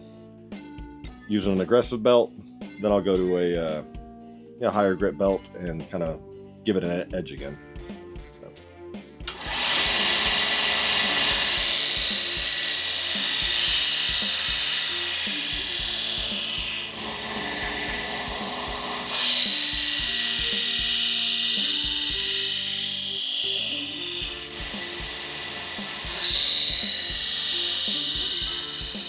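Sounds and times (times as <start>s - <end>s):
belt grinder grinding steel: 9.3s - 29.0s.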